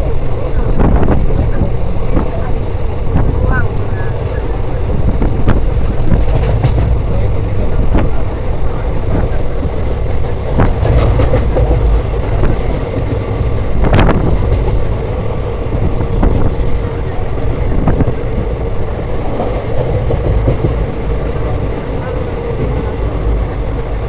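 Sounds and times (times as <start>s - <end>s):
train rumbling on track: 0.0s - 24.0s.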